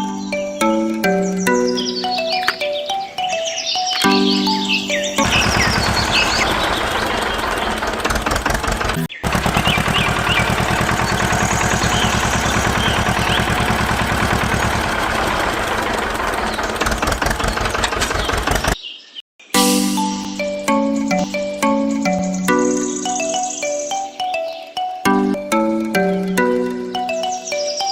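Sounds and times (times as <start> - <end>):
small engine knocking: 5.2 - 18.8.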